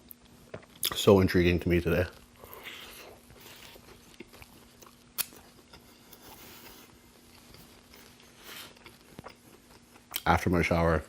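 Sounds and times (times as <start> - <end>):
close chewing: 2.4 - 10.3.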